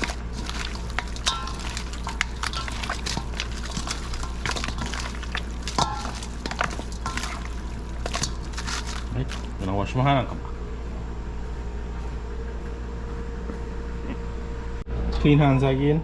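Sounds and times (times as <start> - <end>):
hands squelching wet meat: 0.0 - 9.8
steady low hum: 0.0 - 16.0.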